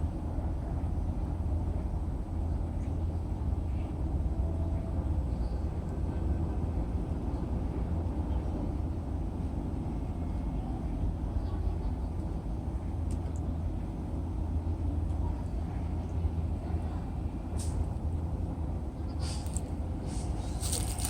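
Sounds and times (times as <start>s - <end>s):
railway platform rumble: 0.0s - 21.0s.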